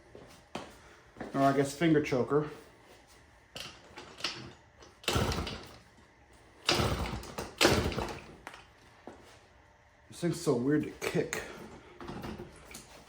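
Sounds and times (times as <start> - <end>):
motorcycle engine kick-start clatter: 3.6 - 5.8, 6.6 - 8.7.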